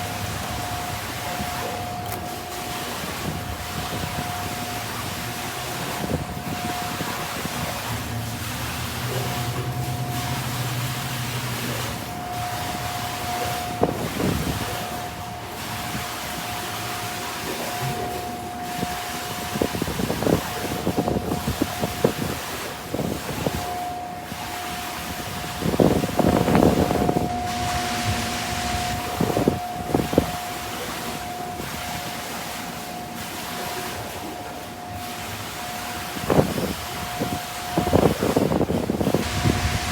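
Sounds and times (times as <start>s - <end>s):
machine hum: 0.0s - 22.2s, 23.9s - 39.9s
thin steady whine: 0.0s - 39.9s
high whine: 23.5s - 39.9s
water spray hissing: 39.1s - 39.9s.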